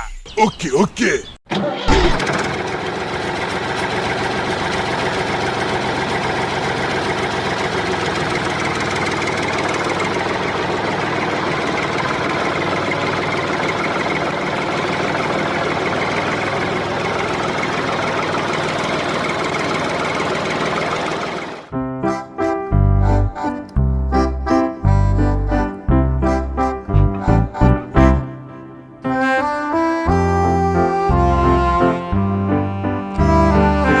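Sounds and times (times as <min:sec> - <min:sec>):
tractor engine idling: 0:01.9 - 0:21.7, 0:23.0 - 0:28.6.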